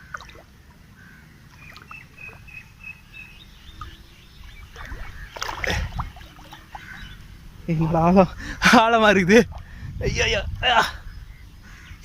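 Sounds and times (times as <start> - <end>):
water splashing from wading: 0.0 - 7.7.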